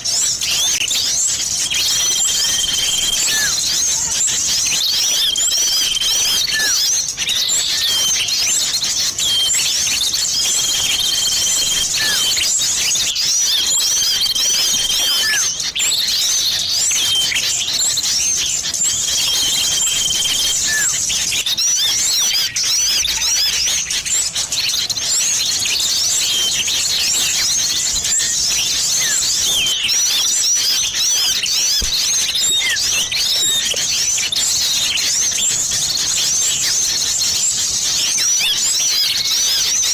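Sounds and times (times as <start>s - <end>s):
held bird whistle: 0.0s - 39.9s
small birds chirping: 0.0s - 39.9s.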